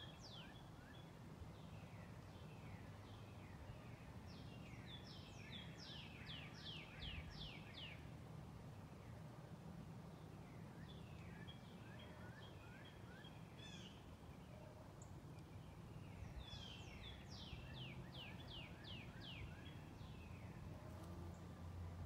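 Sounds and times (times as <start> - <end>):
songbird whistling song: 1.7 - 8.0.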